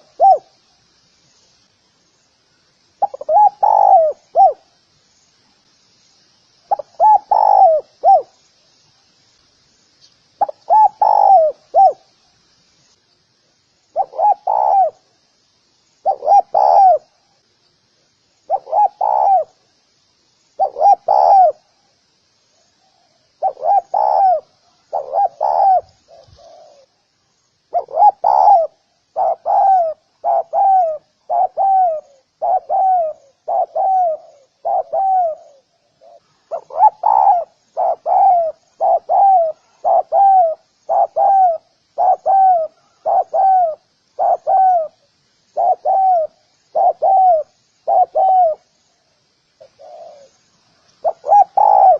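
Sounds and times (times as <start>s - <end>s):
dove cooing: 0.0s - 0.6s, 3.0s - 4.7s, 6.7s - 8.4s, 10.4s - 12.1s, 14.0s - 15.1s, 16.0s - 17.2s, 18.5s - 19.6s, 20.6s - 21.7s, 23.0s - 27.0s, 27.7s - 48.7s, 49.6s - 50.3s, 51.0s - 51.9s.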